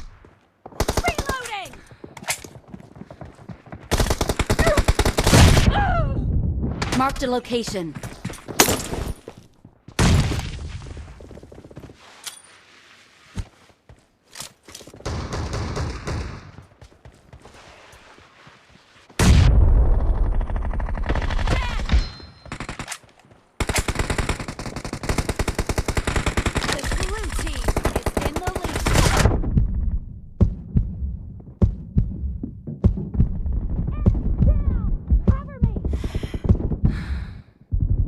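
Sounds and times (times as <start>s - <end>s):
rapid automatic gunfire: 0.8s - 1.4s, 3.9s - 5.6s, 20.0s - 21.8s, 23.6s - 29.3s.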